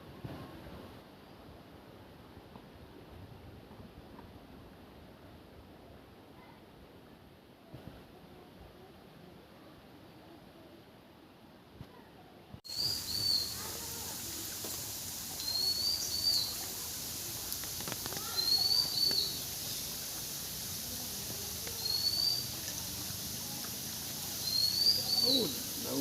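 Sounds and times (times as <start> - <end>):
steady hiss: 12.6 - 26.0
bird whistling rising calls: 12.7 - 13.6, 15.4 - 16.6, 18.2 - 19.5, 21.8 - 22.5, 24.4 - 25.8.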